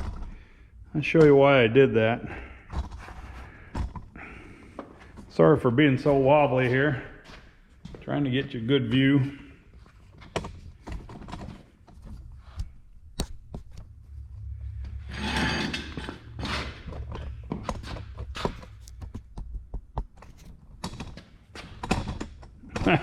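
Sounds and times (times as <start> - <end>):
low steady hum: 9.6 - 20.7
knocks and clicks: 16.9 - 23.0.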